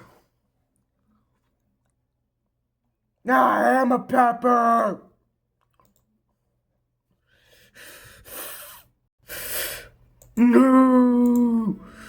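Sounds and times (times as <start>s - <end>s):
man shouting: 3.3s - 5.1s, 10.4s - 11.8s
man breathing heavily: 7.2s - 10.0s.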